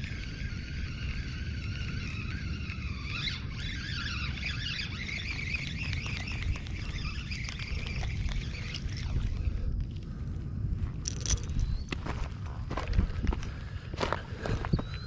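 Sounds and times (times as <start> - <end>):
high wavering animal calls: 0.0 - 9.4
wind rumble on microphone: 0.0 - 15.0.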